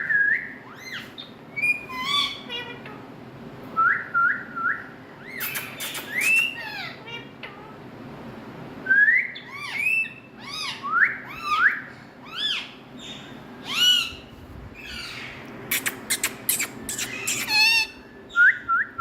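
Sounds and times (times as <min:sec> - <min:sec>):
parrot whistling squawks: 0:05.2 - 0:07.0, 0:15.0 - 0:18.0.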